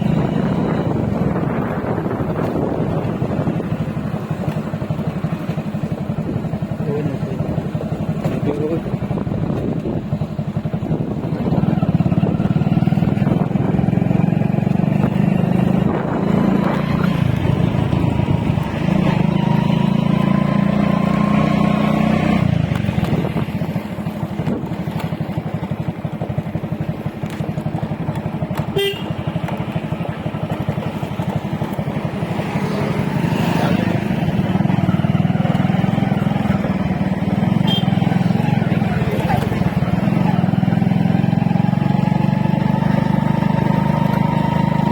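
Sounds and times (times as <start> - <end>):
wind noise: 0.0 - 4.2, 9.1 - 19.3
motorcycle engine: 0.0 - 44.9.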